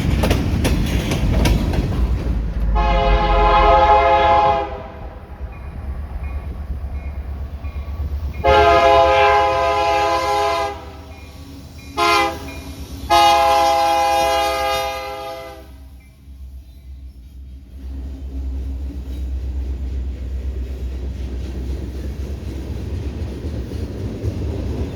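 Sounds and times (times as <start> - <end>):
low train rumble: 0.0 - 24.9
locomotive air horn blasts: 2.7 - 5.1, 8.4 - 11.3, 12.0 - 16.0.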